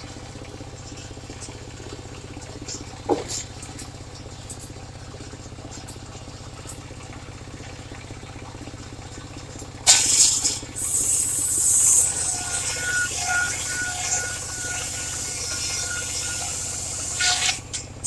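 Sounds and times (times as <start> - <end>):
sawmill engine running: 0.0 - 18.0
saw blade cutting wood: 9.9 - 17.8.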